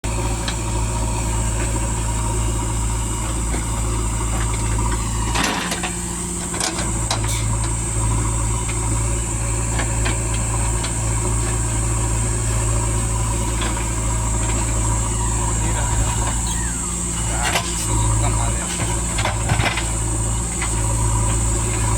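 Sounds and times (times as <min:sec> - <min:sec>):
diesel engine running: 0:00.0 - 0:21.9.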